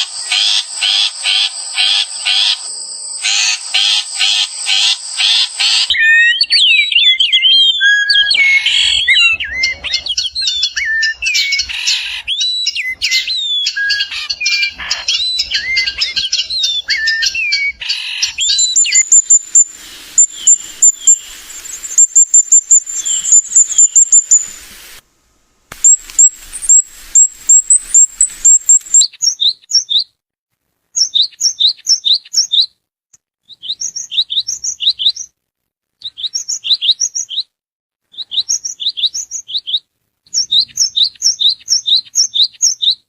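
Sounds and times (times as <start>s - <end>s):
high bird chirps: 0.0s - 24.7s, 25.8s - 30.1s
bird rapid pulsing call: 0.0s - 25.0s, 25.8s - 29.1s
whistled bird song with trills: 0.1s - 24.6s, 25.8s - 30.1s, 31.0s - 32.8s, 33.4s - 35.3s, 36.0s - 37.5s, 38.1s - 43.0s.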